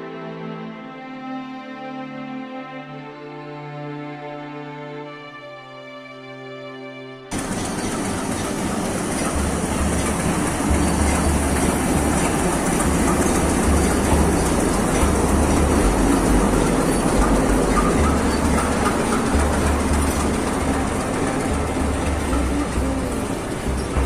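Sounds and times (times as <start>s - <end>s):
train rumbling on rails: 7.3s - 24.0s.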